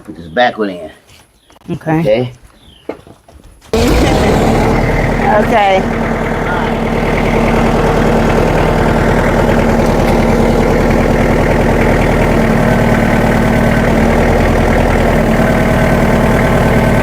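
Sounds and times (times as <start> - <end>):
vehicle engine idling: 3.8 - 17.0.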